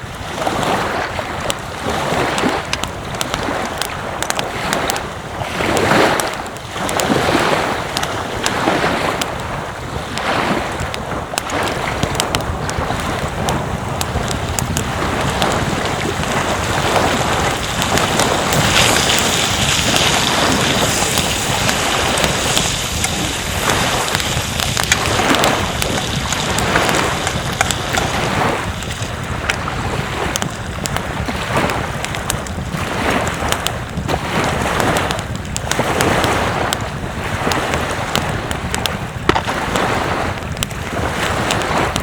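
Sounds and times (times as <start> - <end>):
breaking surf: 0.0 - 42.0
wind buffeting microphone: 0.0 - 42.0
small crackles: 0.2 - 42.0.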